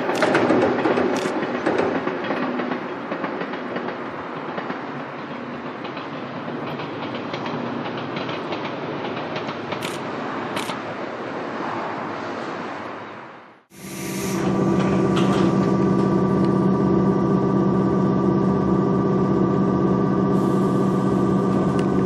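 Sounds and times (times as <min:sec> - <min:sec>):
rail joint clickety-clack: 0:00.0 - 0:10.9, 0:14.4 - 0:16.6
train wheels rumbling on rails: 0:00.0 - 0:11.0, 0:13.7 - 0:22.0.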